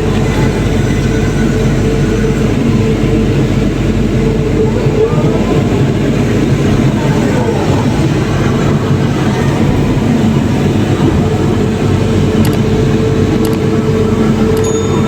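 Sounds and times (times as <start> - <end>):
heavy diesel engine running: 0.0 - 15.0
faint clicks: 13.4 - 13.8.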